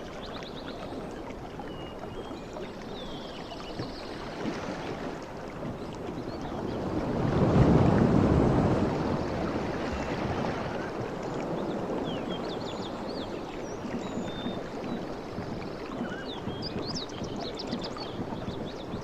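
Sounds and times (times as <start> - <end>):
ocean waves washing in: 4.2 - 19.0
small birds chirping: 11.5 - 19.0.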